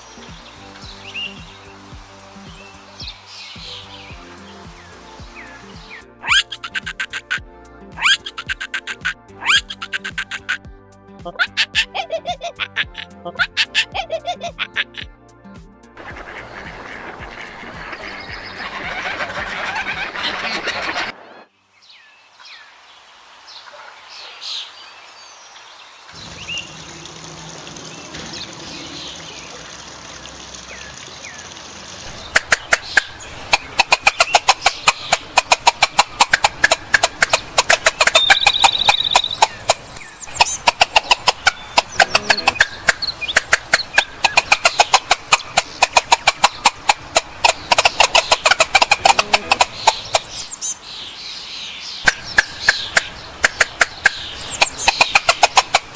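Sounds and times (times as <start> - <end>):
fowl calling: 6.2 - 7.4, 8.0 - 10.6, 16.0 - 21.5, 32.1 - 50.6.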